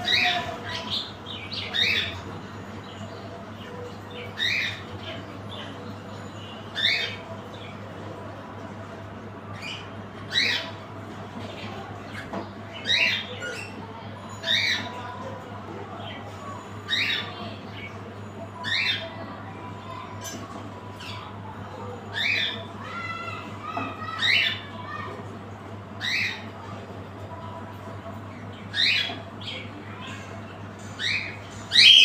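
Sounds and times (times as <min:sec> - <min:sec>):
cockatiels calling: 0:00.0 - 0:02.3, 0:04.3 - 0:04.8, 0:09.6 - 0:10.7, 0:26.0 - 0:26.4, 0:31.0 - 0:32.0.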